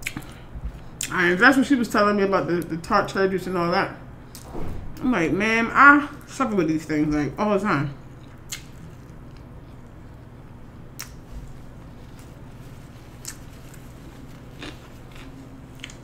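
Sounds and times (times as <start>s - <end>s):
low steady hum: 0.0s - 16.0s
chewing food: 8.1s - 16.0s.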